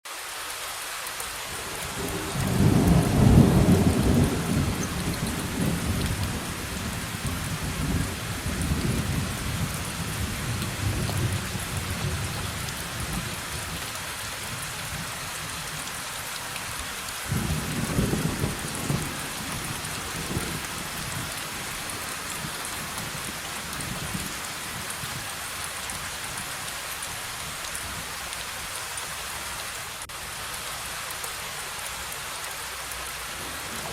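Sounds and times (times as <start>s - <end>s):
heavy rain: 0.0s - 33.9s
thunder rolling: 2.0s - 13.4s.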